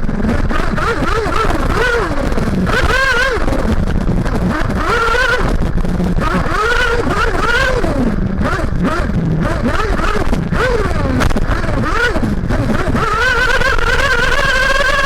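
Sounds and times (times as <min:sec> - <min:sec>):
model engine revving: 0:00.0 - 0:15.0.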